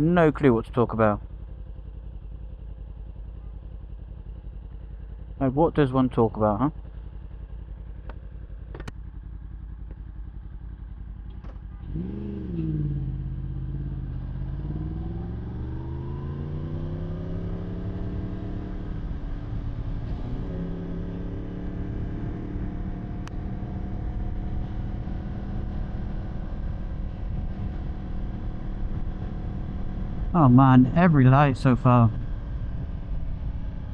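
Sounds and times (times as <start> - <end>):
motorcycle engine revving: 6.8 - 33.9
wind and road noise: 8.0 - 33.9.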